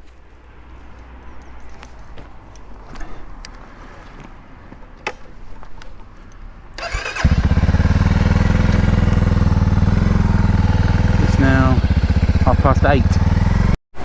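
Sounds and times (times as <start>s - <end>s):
motorcycle engine cranking: 6.8s - 9.5s
motorcycle engine idling: 6.8s - 13.7s.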